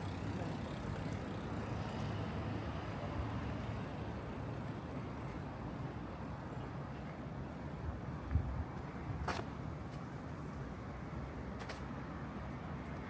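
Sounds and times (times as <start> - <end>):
vehicle engine and tyres rumbling: 0.0 - 13.0.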